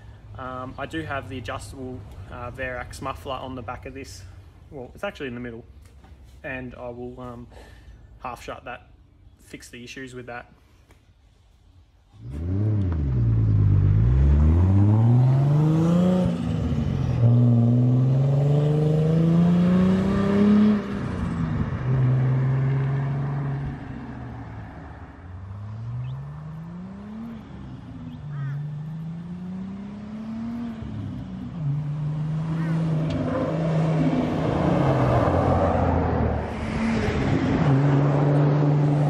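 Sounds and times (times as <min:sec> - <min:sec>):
car engine accelerating through gears: 0:12.2 - 0:39.0.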